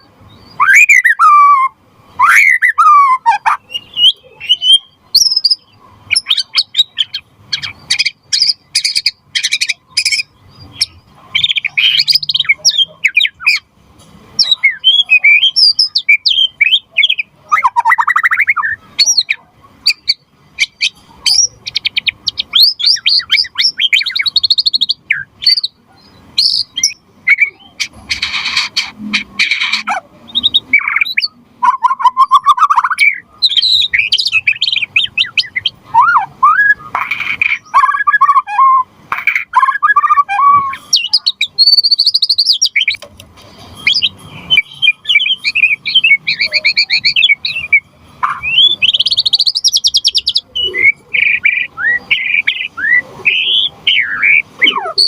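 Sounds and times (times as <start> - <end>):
songbird singing varied phrases: 0.0 - 13.7, 14.3 - 55.0.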